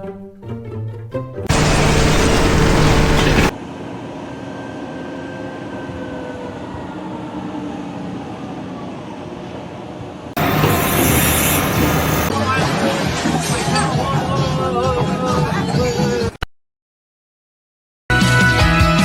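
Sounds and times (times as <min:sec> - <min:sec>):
faint whine falling in pitch: 0:01.5 - 0:03.5
loud rush of noise: 0:01.5 - 0:03.5
machine rumble: 0:01.5 - 0:03.6, 0:10.4 - 0:12.3.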